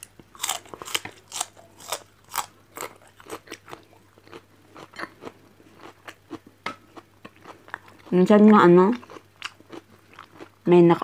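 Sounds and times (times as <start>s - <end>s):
person chewing crunchy food: 0.0s - 8.3s, 8.9s - 10.7s.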